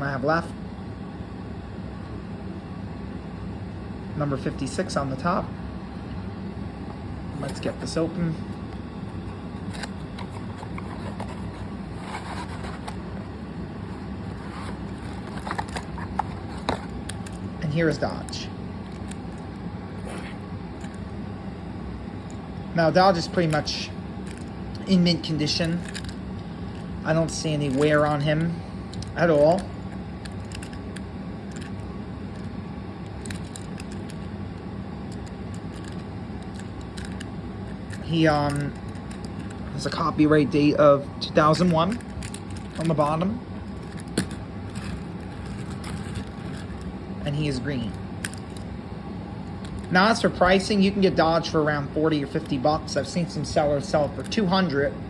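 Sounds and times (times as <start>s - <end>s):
low background hum: 0.0s - 55.0s
cardboard and plastic rustling: 8.8s - 17.5s, 41.6s - 46.9s.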